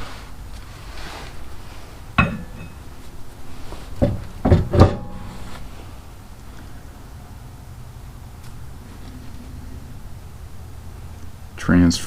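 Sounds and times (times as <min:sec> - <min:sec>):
metal clanks with ringing: 0:02.2 - 0:02.9, 0:04.0 - 0:05.4.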